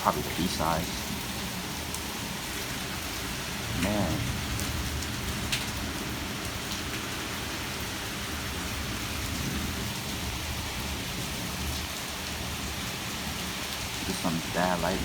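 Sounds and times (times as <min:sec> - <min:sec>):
heavy rain pouring: 0:00.0 - 0:15.0
low rumble of thunder: 0:03.4 - 0:13.6.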